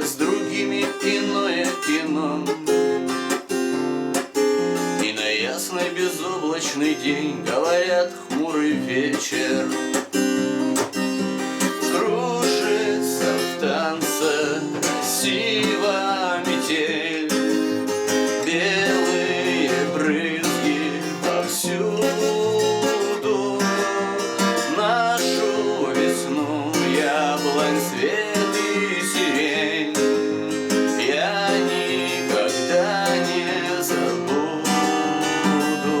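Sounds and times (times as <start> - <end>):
acoustic guitar strumming: 0.0 - 36.0.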